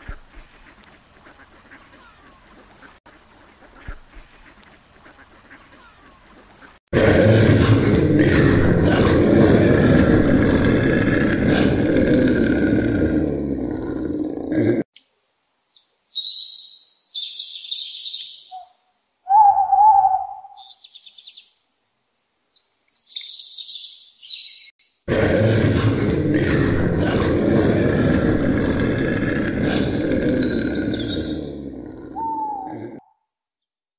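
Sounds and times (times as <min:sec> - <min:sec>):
high bird chirps: 0:15.7 - 0:21.5, 0:22.9 - 0:24.8
short low bird call: 0:18.5 - 0:20.8.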